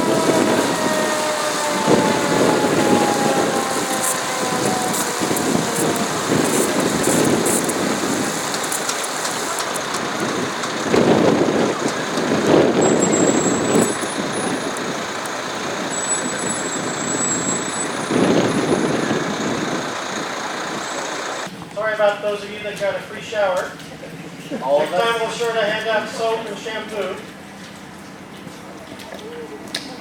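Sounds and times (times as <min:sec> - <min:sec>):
fire hoses spraying water: 0:00.0 - 0:21.5
fire truck engines running: 0:00.0 - 0:30.0.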